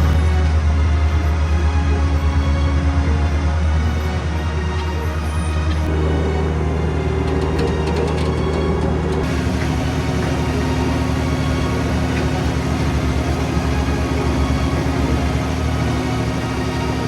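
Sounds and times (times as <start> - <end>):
diesel truck engine idling: 3.8 - 17.0.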